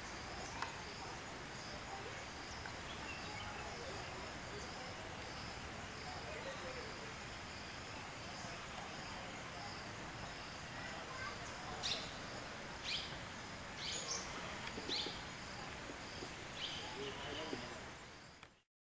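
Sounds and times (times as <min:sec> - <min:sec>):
background hiss: 0:00.0 - 0:18.6
insect chirping: 0:00.0 - 0:18.6.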